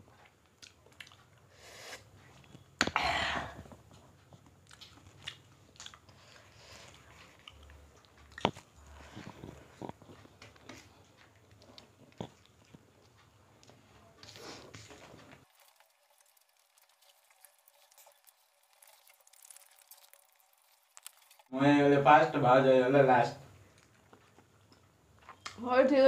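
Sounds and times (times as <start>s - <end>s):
chewing and lip smacks: 0.2s - 1.5s, 3.9s - 14.8s, 15.5s - 21.5s, 23.7s - 25.6s.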